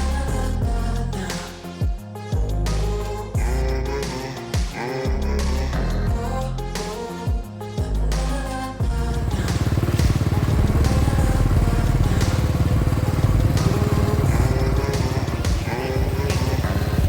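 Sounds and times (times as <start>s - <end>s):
motorcycle engine running: 8.8s - 17.0s.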